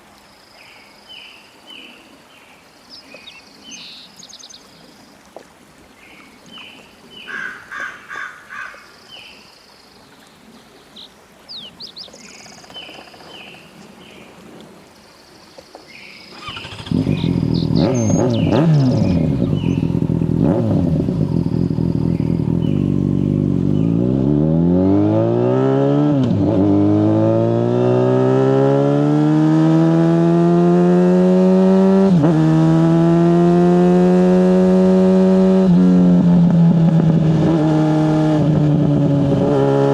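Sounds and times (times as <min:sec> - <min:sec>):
birds chirping: 0:00.5 - 0:05.1, 0:06.0 - 0:14.4, 0:15.0 - 0:26.0
motorcycle engine accelerating: 0:16.3 - 0:39.9.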